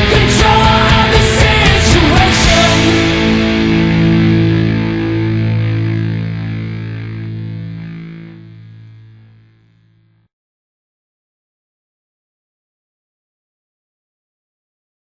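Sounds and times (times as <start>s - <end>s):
rock band crash: 0.0s - 8.4s
distorted electric guitar chord: 0.0s - 10.3s.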